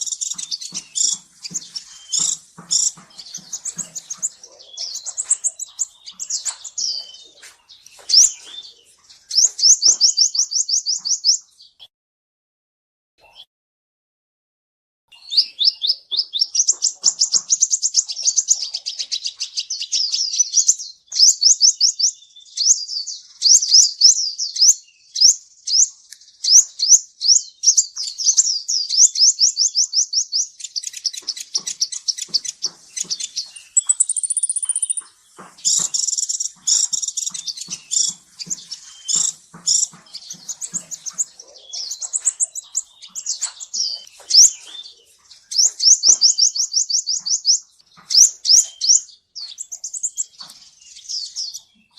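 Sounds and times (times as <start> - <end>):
sunbird singing rapid trills: 0.0 - 11.5, 15.2 - 51.9
thin high bird whistle: 33.7 - 35.0.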